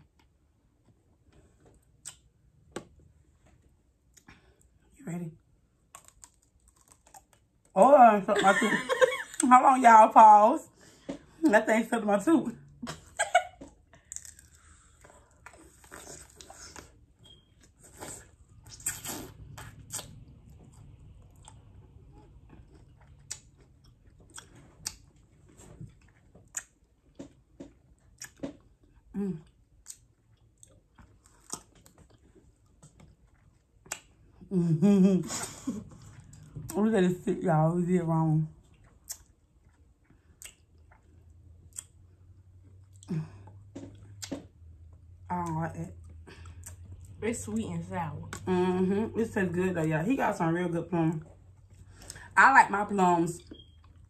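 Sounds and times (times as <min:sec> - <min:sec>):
chewing and crunching candy: 0:05.7 - 0:07.8, 0:13.6 - 0:34.5, 0:38.5 - 0:47.2.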